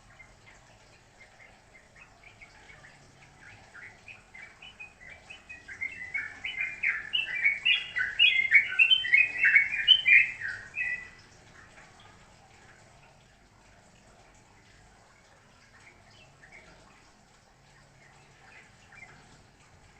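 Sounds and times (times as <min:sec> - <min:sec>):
songbird chirping: 0:00.0 - 0:11.3.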